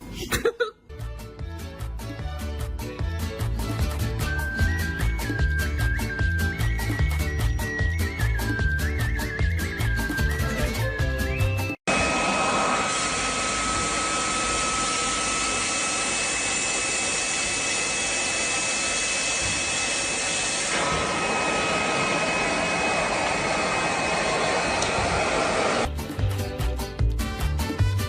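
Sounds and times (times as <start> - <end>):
electric motor whirring: 12.6 - 25.9.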